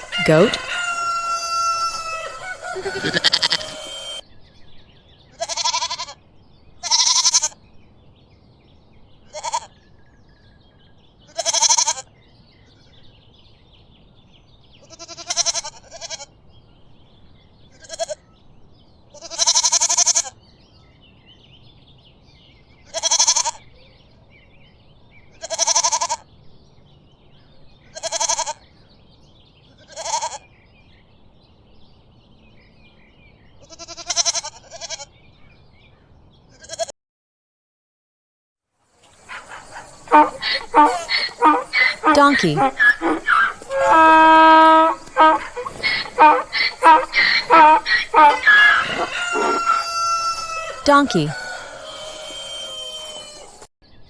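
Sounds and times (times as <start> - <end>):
goat bleating: 0.0 - 4.2, 6.8 - 7.4, 39.3 - 51.4.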